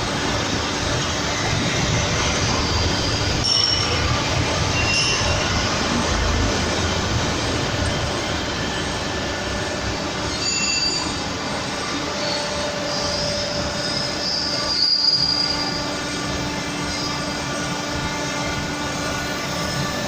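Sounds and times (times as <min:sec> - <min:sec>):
abrasive wheel grinding metal: 0:00.0 - 0:20.0.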